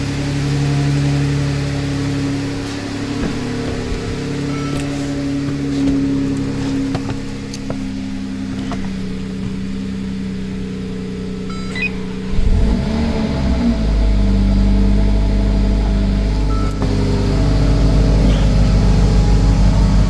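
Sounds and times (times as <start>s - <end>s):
car engine idling: 0.0s - 20.0s
short electronic beep: 4.4s - 5.3s, 11.5s - 12.3s
deep engine starting up: 11.2s - 20.0s.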